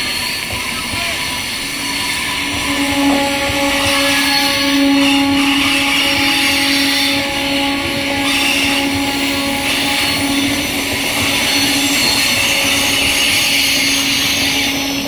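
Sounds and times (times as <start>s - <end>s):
train wheels rumbling on rails: 0.0s - 15.0s
steady low tone: 2.2s - 13.0s.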